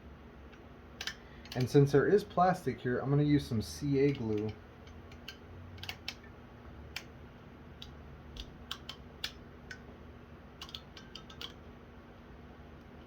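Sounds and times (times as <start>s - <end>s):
small parts clicking: 0.5s - 1.8s, 4.0s - 6.3s, 7.8s - 9.8s, 10.6s - 11.6s.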